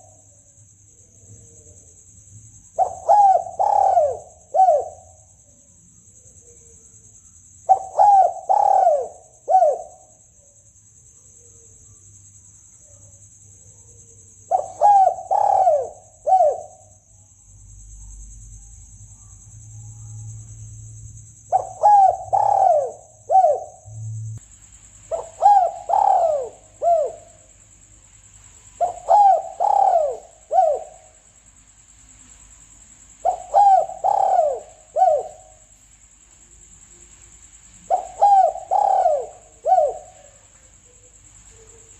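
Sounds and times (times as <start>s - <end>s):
dove cooing: 2.8s - 5.4s, 7.7s - 10.1s, 14.5s - 16.8s, 21.5s - 24.4s, 25.1s - 27.5s, 28.8s - 31.2s, 33.2s - 35.7s, 37.8s - 41.9s
steady high hiss: 14.5s - 41.9s.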